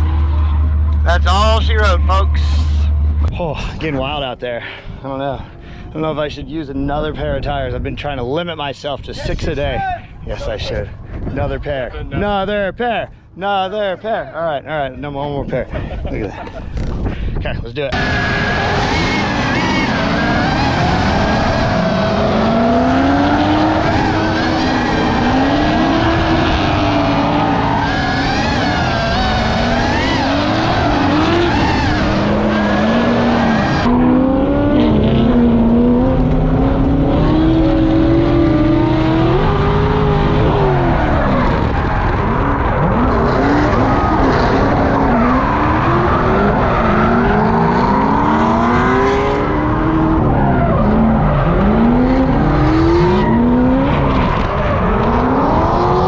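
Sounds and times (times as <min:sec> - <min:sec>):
car engines revving: 0:00.0 - 0:04.2, 0:17.9 - 0:56.0
tyres squealing and skidding: 0:17.9 - 0:34.2, 0:38.7 - 0:56.0.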